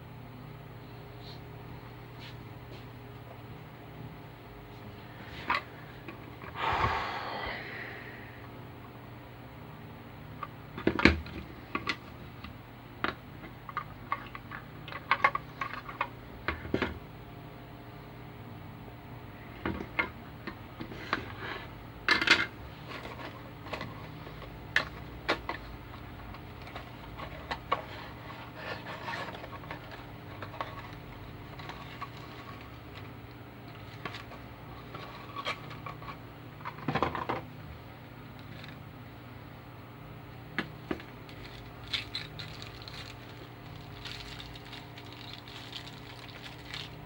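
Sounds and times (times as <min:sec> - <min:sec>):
steady low hum: 0:00.0 - 0:47.0
small hard objects clicking: 0:41.3 - 0:47.0.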